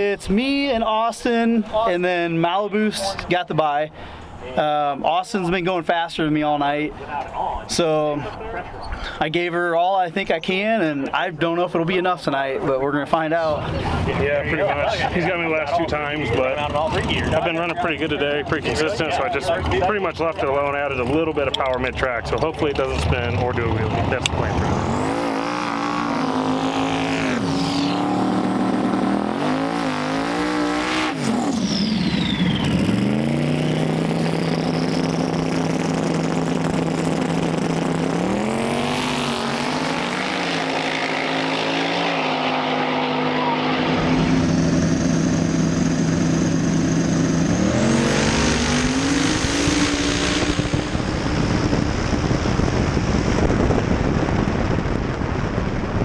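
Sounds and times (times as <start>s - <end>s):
race car engines idling and revving: 0.0s - 56.0s
broad roar: 23.0s - 35.5s, 36.4s - 45.1s, 47.2s - 51.8s.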